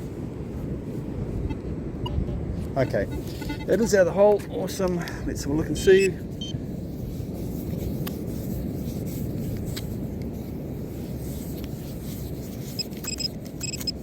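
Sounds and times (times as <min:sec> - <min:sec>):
low outdoor rumble: 0:00.0 - 0:14.0
sand rubbed by hand: 0:06.7 - 0:13.0
metal detector beeps: 0:12.8 - 0:14.0.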